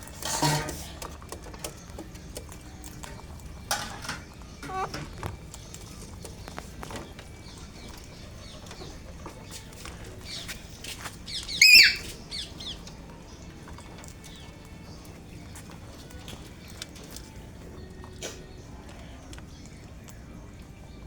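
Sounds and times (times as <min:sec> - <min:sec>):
parakeet chirps: 0:11.3 - 0:12.8
parakeet harsh squawk: 0:11.5 - 0:12.1.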